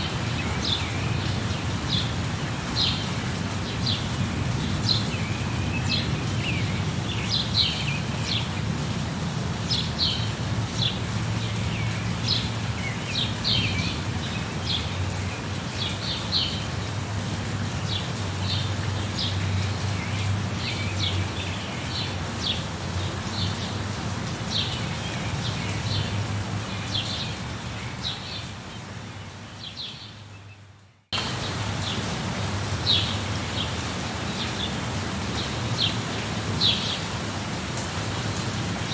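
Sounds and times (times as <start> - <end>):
steady rain: 0.0 - 38.9
birds chirping: 9.7 - 16.8, 17.7 - 37.1.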